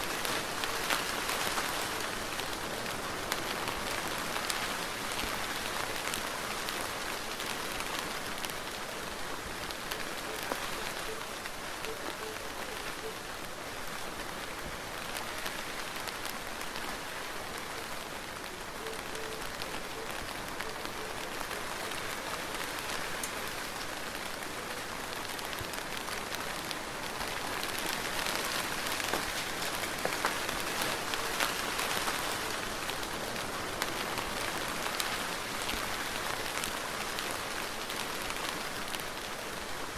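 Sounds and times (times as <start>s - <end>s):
soft rain falling: 0.0s - 39.9s.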